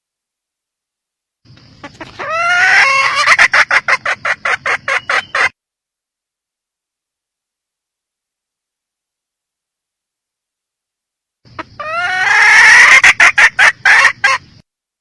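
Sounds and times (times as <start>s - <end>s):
hen calling and clucking: 1.5s - 5.6s, 11.5s - 14.6s.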